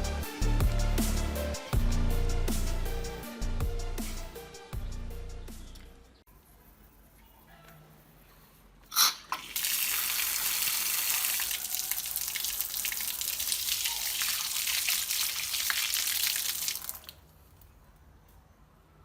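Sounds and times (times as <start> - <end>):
water running from faucet: 9.4 - 17.2.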